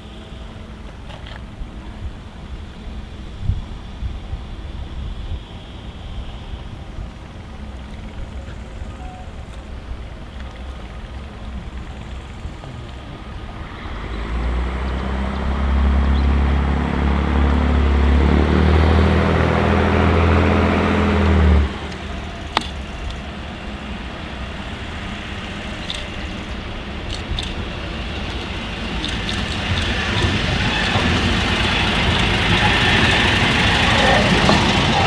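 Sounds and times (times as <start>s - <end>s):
broad background noise: 0.0s - 35.0s
diesel engine running: 0.0s - 35.0s.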